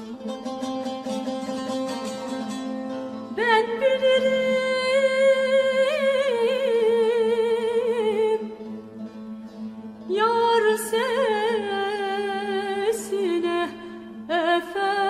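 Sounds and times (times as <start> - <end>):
woman singing folk song: 3.3 - 15.0.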